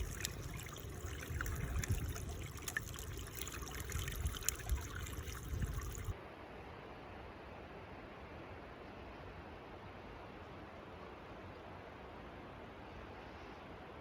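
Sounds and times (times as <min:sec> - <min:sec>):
small splashes and clicks: 0:00.0 - 0:06.2
water trickling: 0:00.0 - 0:06.2.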